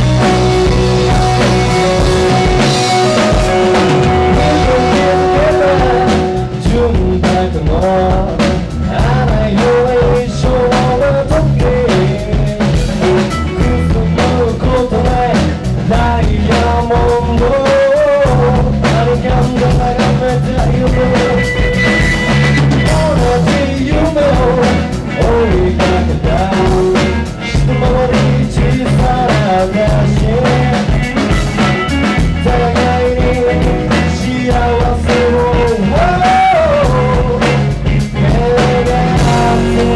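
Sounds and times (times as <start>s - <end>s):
wavering lead melody: 0.0s - 7.4s
drum-kit beat: 0.0s - 39.9s
rock band playing: 0.0s - 39.9s.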